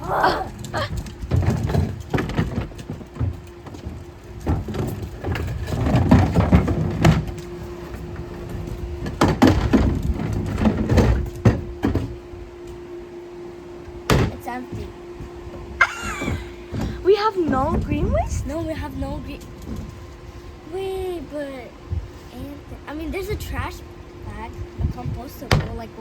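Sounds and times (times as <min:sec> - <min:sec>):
plastic bin wheels rumbling: 0:00.0 - 0:12.2, 0:15.9 - 0:20.0.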